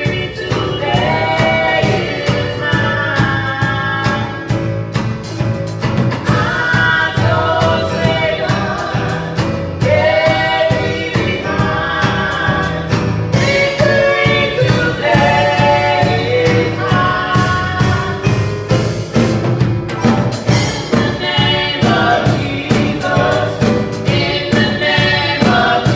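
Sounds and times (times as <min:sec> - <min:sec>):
band with steady drum beat: 0:00.0 - 0:25.9
gospel choir singing: 0:00.0 - 0:25.9.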